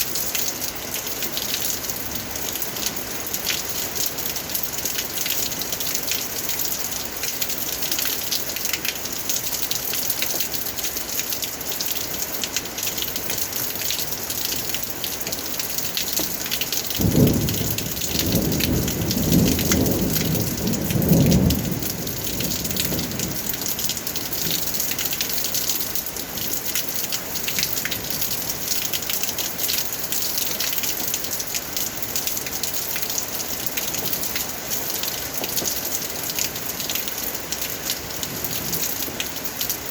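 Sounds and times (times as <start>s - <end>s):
rain pattering: 0.0s - 39.9s
thunder rumbling: 17.0s - 23.8s.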